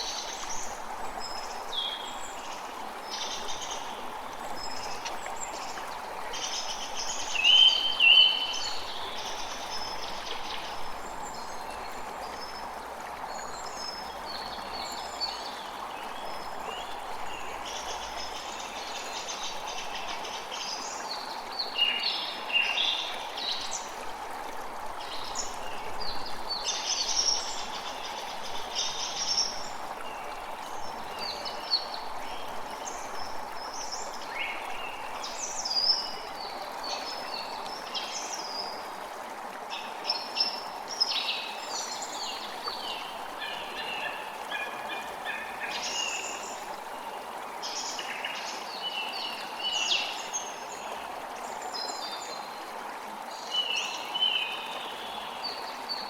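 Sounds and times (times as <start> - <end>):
creek running: 0.0 - 56.0.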